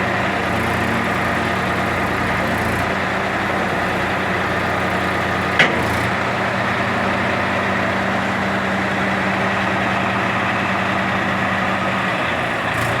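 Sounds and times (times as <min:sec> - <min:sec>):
tractor engine running: 0:00.0 - 0:13.0
sharp knock: 0:05.6 - 0:06.2.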